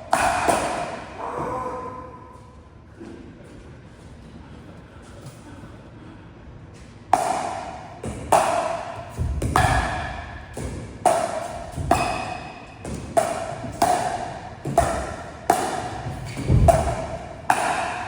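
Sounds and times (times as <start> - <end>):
paddles hitting plastic ball: 7.2 - 18.0.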